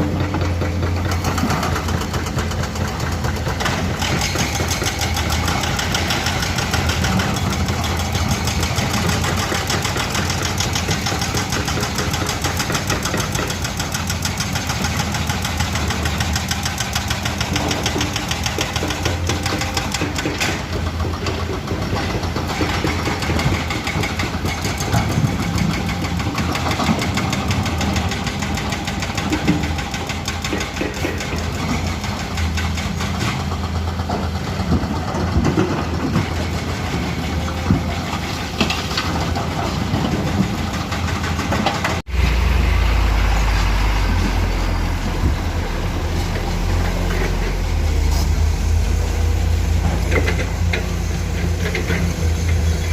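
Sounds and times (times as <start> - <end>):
knocks and clanks: 0.0 - 42.3, 44.1 - 52.9
excavator diesel engines running: 0.0 - 52.9.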